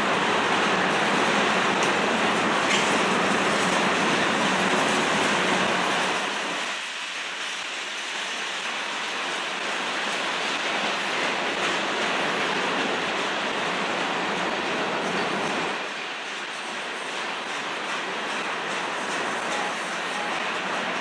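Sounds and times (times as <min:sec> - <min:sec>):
freight train wheels rumbling on rails: 0:00.0 - 0:21.0.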